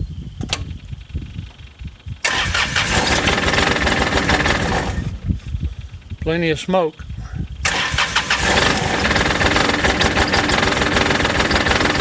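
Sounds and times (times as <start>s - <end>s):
diesel engine running rough: 2.2s - 6.2s, 7.5s - 12.0s.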